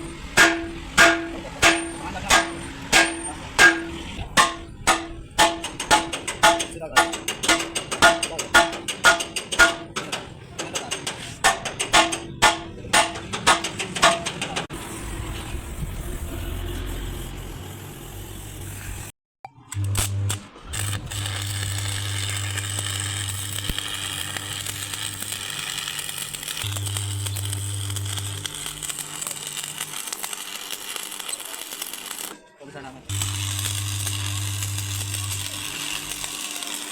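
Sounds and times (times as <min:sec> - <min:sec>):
hammer striking steel: 0:00.0 - 0:14.7.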